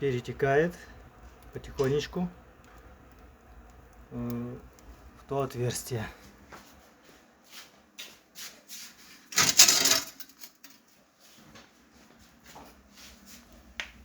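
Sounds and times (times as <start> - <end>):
metal scraping: 9.3 - 10.5.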